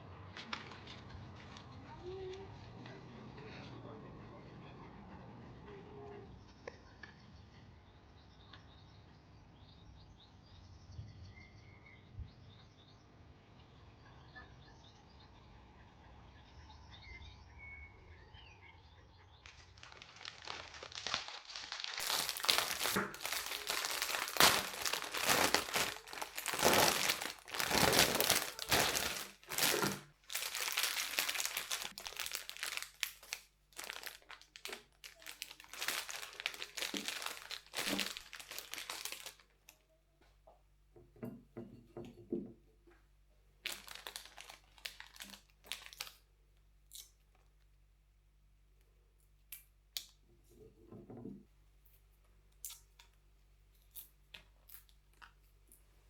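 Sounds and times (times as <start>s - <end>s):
crinkling and rustling: 19.4s - 40.4s, 41.8s - 46.3s.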